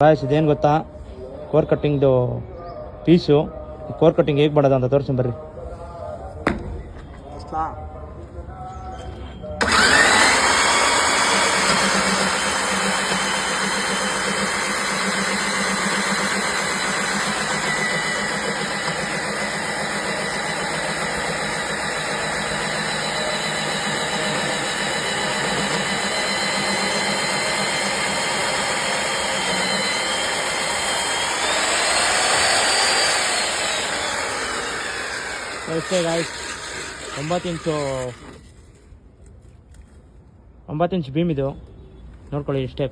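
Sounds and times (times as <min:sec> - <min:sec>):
core drill boring through concrete: 0:09.6 - 0:38.5.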